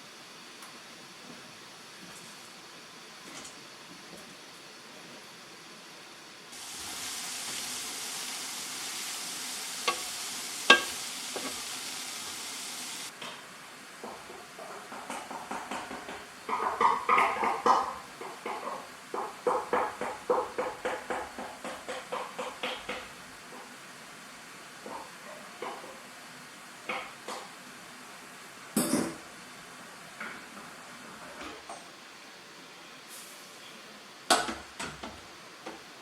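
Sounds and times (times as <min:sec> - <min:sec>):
pan hissing: 0:06.5 - 0:13.1
rhythmic stirring in a pan: 0:06.5 - 0:13.1.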